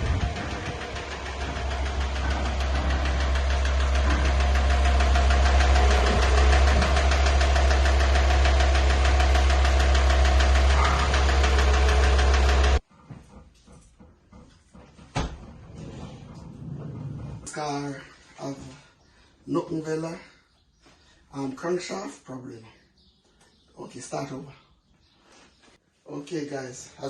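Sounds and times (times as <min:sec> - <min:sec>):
van engine idling with knocking: 0:00.0 - 0:12.8.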